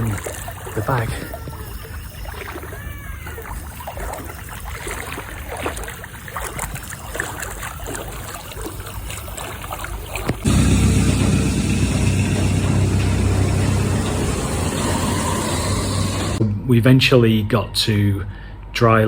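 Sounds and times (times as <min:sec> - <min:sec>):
floodwater sloshing and splashing: 0:00.0 - 0:16.4
steady low rumble: 0:10.5 - 0:16.4.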